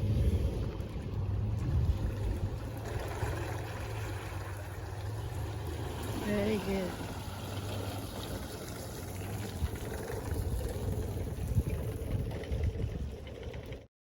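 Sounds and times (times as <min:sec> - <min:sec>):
water noise: 0:00.0 - 0:13.9.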